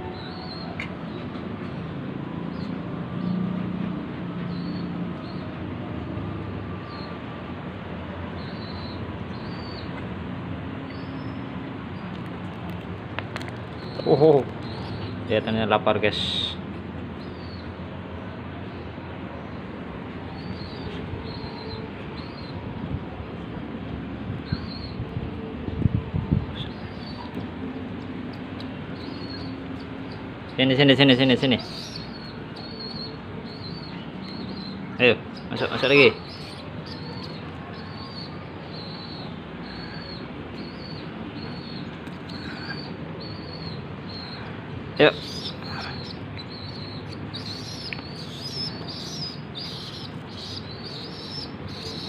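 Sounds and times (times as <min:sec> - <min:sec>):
young pigeons squeaky calls: 0:08.4 - 0:10.0, 0:20.3 - 0:22.6, 0:29.0 - 0:30.2, 0:31.4 - 0:52.0.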